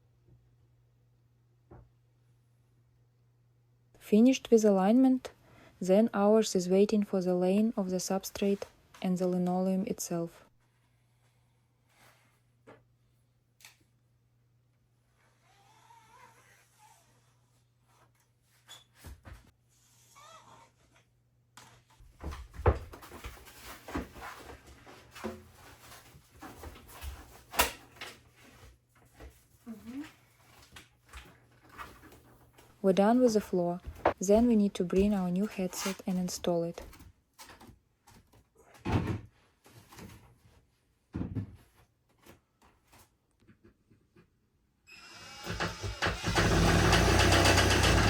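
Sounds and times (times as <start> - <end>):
rustling and scraping: 21.6 - 38.3
wooden knocks and thuds: 41.1 - 41.7
small motor running: 45.0 - 48.0.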